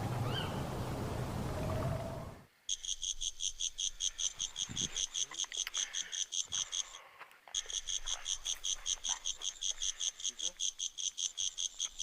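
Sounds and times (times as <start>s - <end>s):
insect chirping: 2.6s - 12.0s.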